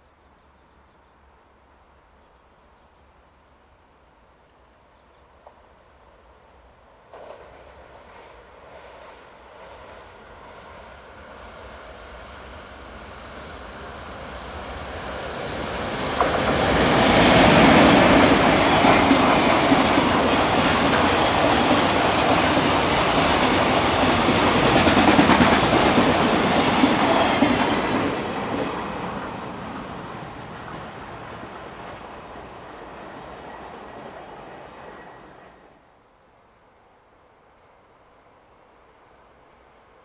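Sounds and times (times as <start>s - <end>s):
freight train passing: 5.4s - 36.0s.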